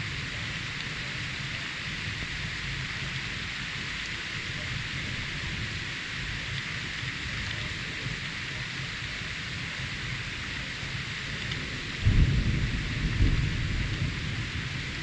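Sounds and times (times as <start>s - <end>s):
heavy rain hissing: 0.0s - 15.0s
low rumble of thunder: 11.5s - 15.0s.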